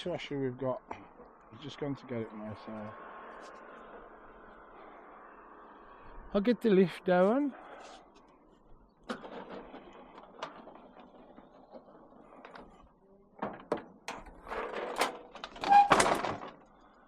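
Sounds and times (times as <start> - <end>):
scrap knocking and clattering: 9.0 - 16.6.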